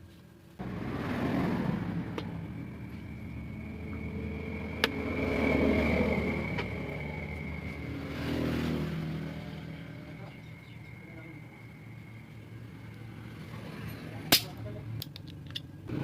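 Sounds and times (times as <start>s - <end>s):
motorcycle engine revving: 0.6s - 10.8s.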